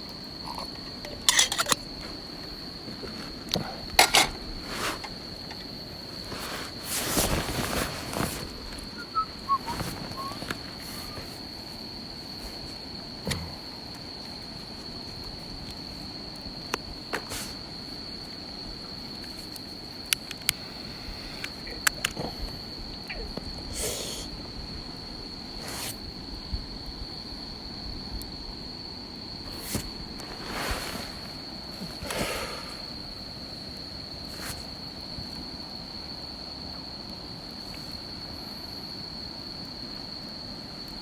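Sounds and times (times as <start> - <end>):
high-pitched insect trill: 0.0 - 41.0
campfire crackling: 0.1 - 26.2.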